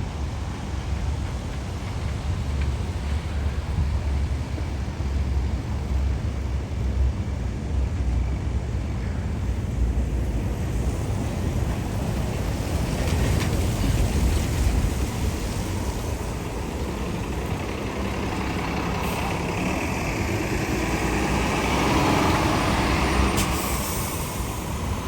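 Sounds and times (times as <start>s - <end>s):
distant traffic: 0.0s - 25.0s
tyres hissing on wet street: 0.0s - 25.0s
wind buffeting microphone: 9.4s - 25.0s.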